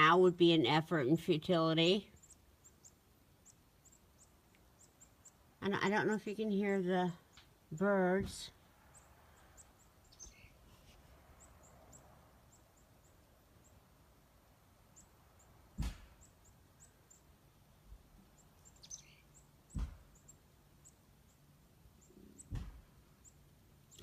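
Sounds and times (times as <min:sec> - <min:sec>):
small birds chirping: 0:00.0 - 0:24.0
sharp thumps: 0:15.8 - 0:16.2, 0:19.7 - 0:20.2, 0:22.4 - 0:22.9.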